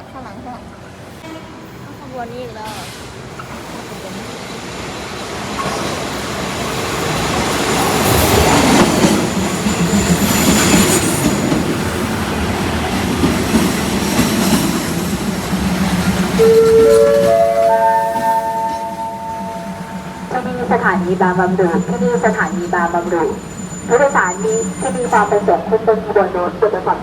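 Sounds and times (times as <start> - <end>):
train rumbling past: 0.0 - 27.0
station chime rising tones: 16.4 - 23.2
high wheel squeal: 21.8 - 25.4.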